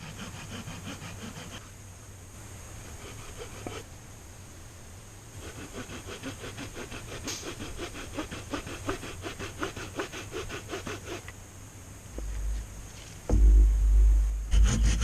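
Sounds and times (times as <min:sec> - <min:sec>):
bucksaw cutting wood: 0:00.0 - 0:01.6, 0:02.9 - 0:03.9, 0:05.4 - 0:11.3, 0:14.5 - 0:15.0.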